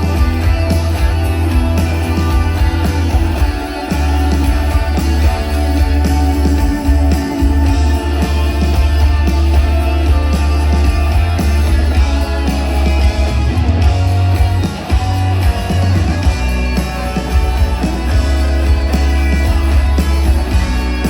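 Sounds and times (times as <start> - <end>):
electric guitar: 0.0 - 21.0
heavy booming bass: 0.0 - 21.0
live rock band playing: 0.0 - 21.0.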